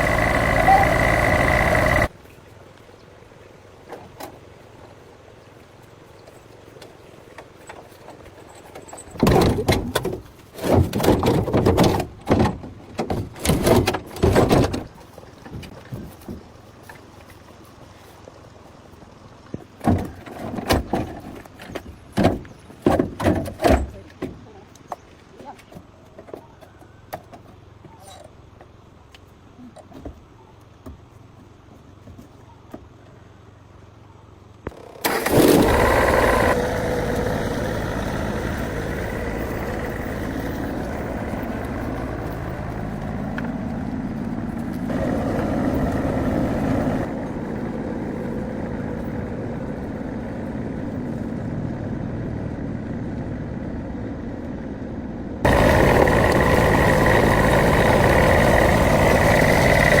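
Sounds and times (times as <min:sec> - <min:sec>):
truck engine starting and running: 0:00.0 - 0:02.2, 0:34.6 - 1:00.0.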